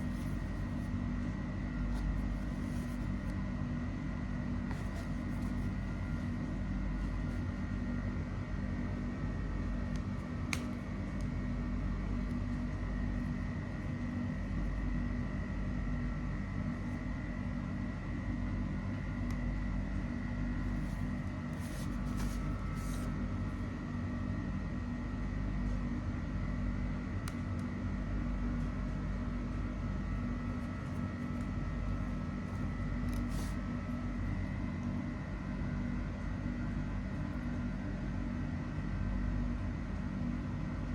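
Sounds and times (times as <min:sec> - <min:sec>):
mechanical hum: 0:00.0 - 0:40.9.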